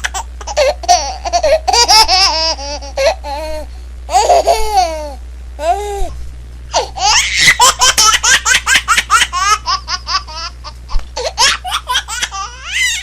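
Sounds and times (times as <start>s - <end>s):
high-pitched squealing laughter: 6.7s - 13.0s.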